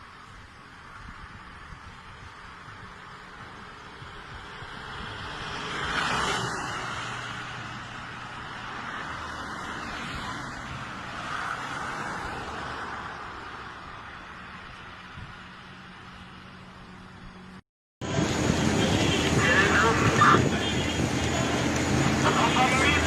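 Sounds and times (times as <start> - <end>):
road vehicles passing: 0.0 - 23.0
faint engine hum: 13.8 - 23.0.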